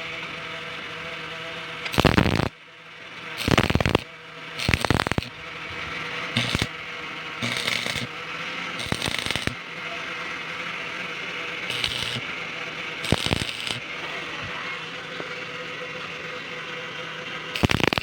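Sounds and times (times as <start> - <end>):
faint steady hum: 0.0 - 18.0
harsh metal scraping strokes: 5.8 - 6.7, 7.4 - 8.1, 8.8 - 9.6, 13.0 - 14.4.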